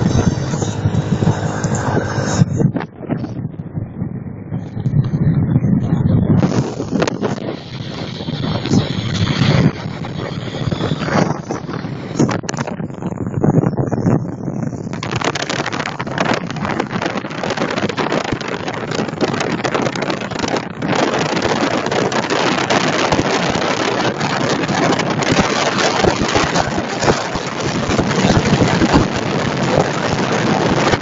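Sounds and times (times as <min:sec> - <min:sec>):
motorcycle engine running: 0:00.0 - 0:02.8
wind rushing over microphone: 0:00.0 - 0:31.0.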